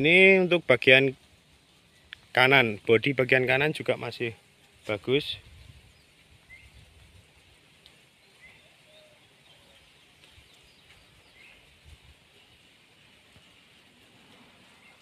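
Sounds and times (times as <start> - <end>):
faint bird chirps: 5.5 - 7.0, 7.9 - 15.0.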